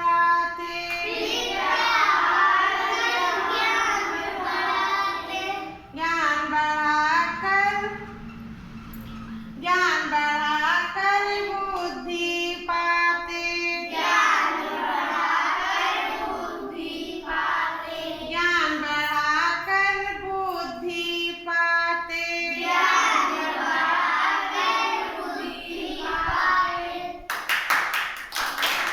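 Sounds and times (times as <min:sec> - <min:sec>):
child singing: 0:00.0 - 0:05.9, 0:10.0 - 0:20.6, 0:21.5 - 0:27.3
people clapping: 0:27.3 - 0:28.9.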